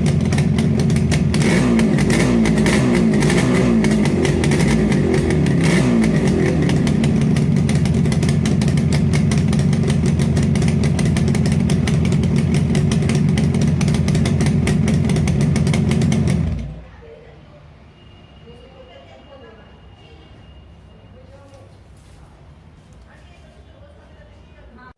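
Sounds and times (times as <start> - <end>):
motorcycle engine revving and idling: 0.0 - 16.8.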